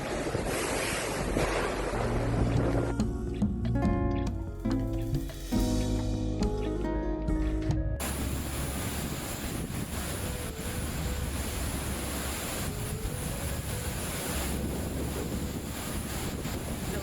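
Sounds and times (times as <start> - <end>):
storm wind gusting: 8.0 - 17.0.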